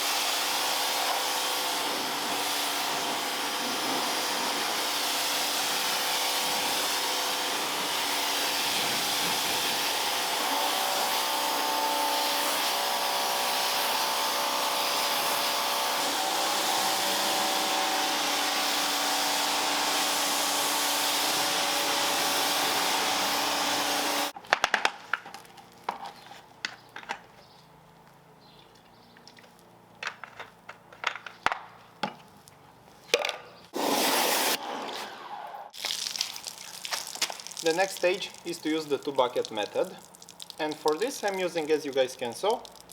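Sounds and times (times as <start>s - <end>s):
pressure washer spraying: 0.0s - 24.4s, 33.8s - 34.6s.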